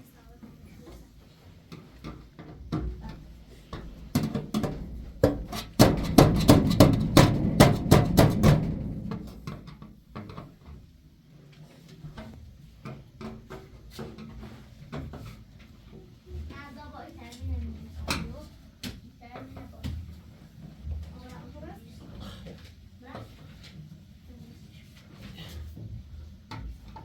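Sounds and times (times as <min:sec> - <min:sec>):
rapid sharp knocks: 0:04.2 - 0:09.9
low rumble: 0:06.1 - 0:09.8.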